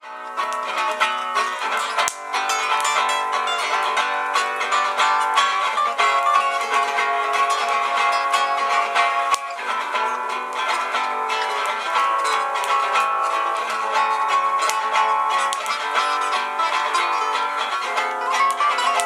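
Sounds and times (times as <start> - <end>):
acoustic guitar picked notes: 0.0 - 19.0.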